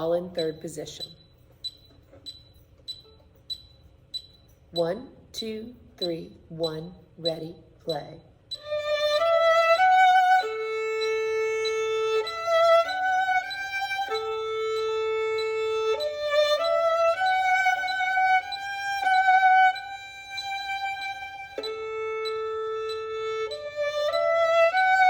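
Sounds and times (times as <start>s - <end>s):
solo violin melody: 8.6s - 25.0s.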